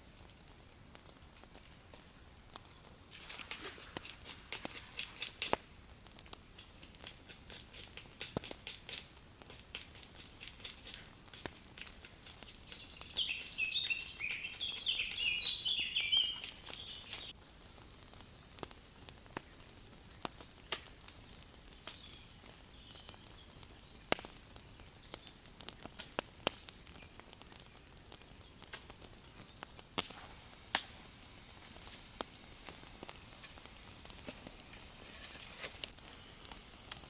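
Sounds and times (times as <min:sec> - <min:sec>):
small clicks and crackles: 0:00.0 - 0:37.0
songbird chirping: 0:12.7 - 0:17.3.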